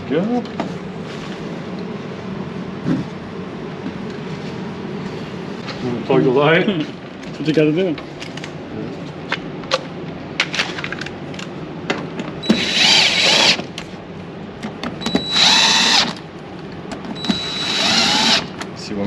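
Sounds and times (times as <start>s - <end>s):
power drill motor whining: 12.4s - 13.7s, 15.0s - 16.3s, 17.1s - 18.7s.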